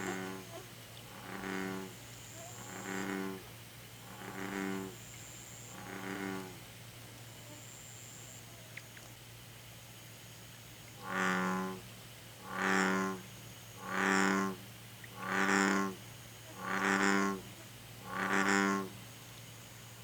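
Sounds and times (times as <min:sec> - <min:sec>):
bullfrog low croaks: 0:00.0 - 0:06.7, 0:10.9 - 0:19.1.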